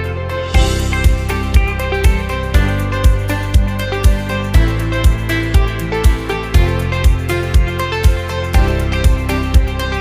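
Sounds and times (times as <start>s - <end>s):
plucked guitar: 0.0s - 10.0s
low thumping beat: 0.6s - 5.7s.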